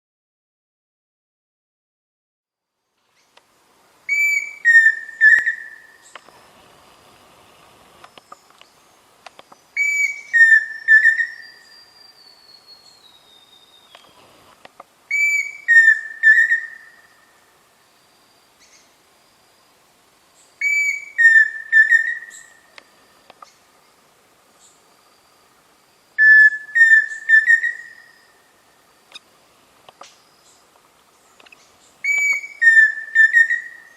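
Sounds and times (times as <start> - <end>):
cuckoo whistling song: 4.1 - 6.2, 9.8 - 14.2, 15.1 - 17.3, 20.6 - 22.9, 26.2 - 28.5, 32.0 - 33.9.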